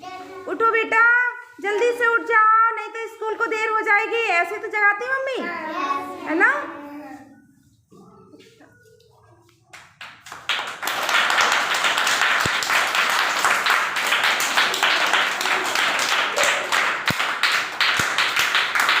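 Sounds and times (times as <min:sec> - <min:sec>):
crowd applauding: 0:10.2 - 0:19.0.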